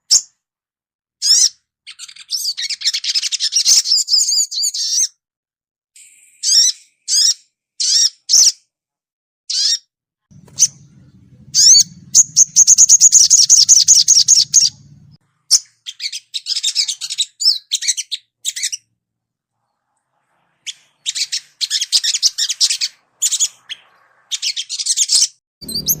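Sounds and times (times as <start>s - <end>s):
bird rattling trill: 10.3s - 15.2s
bird chirping: 10.3s - 18.9s, 20.6s - 26.0s.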